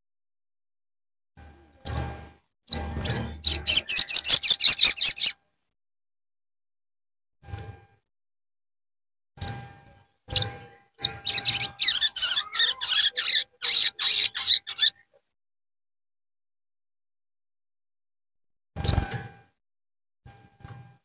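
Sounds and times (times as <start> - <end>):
bird calls: 2.7 - 5.4, 10.3 - 15.2
sharp high chirps: 2.7 - 5.4, 10.3 - 15.0.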